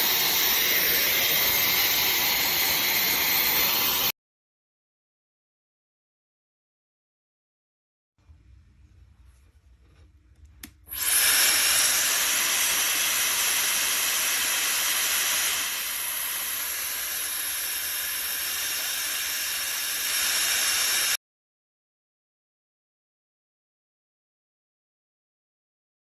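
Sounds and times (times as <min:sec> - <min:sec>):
hair dryer blowing with motor whine: 0:00.0 - 0:04.1, 0:10.9 - 0:21.2.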